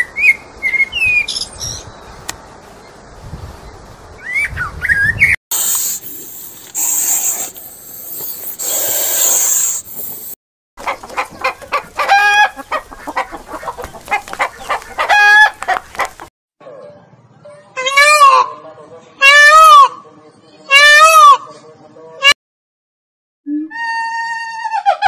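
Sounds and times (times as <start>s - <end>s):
bird chirps: 0.0s - 2.0s
noisy hissing: 5.5s - 10.4s
chickens clucking: 10.8s - 16.3s.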